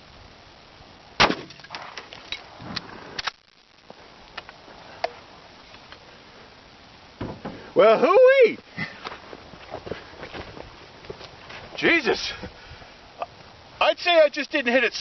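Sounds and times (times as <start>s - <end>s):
shotgun blast: 1.2s - 1.9s.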